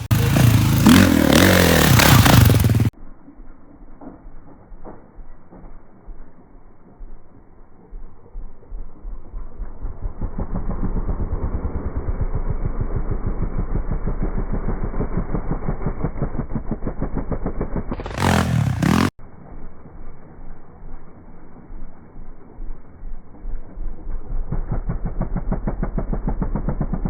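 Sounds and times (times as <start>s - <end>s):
dirt bike engine running: 0.0s - 3.0s, 4.0s - 27.0s.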